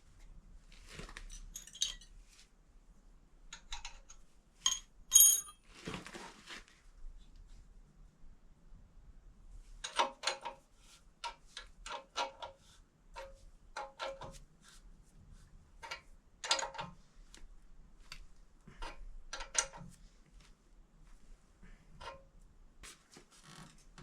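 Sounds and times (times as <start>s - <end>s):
hand tools clinking on metal: 1.3s - 2.1s, 4.7s - 5.6s.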